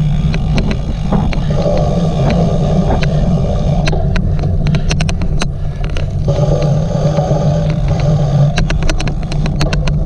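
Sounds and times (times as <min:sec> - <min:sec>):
sharp clicks from bike: 0:00.0 - 0:03.2, 0:07.6 - 0:10.0
bike riding rumble: 0:00.0 - 0:10.0.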